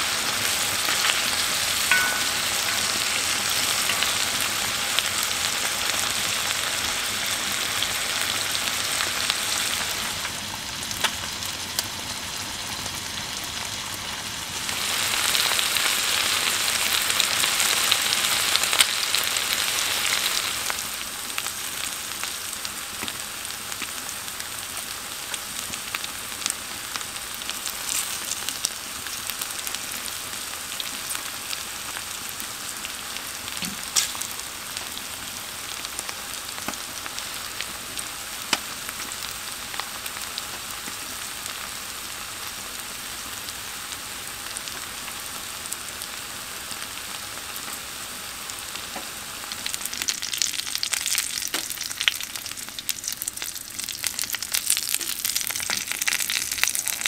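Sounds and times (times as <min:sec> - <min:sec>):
meat and vegetables sizzling: 0:00.0 - 0:57.0.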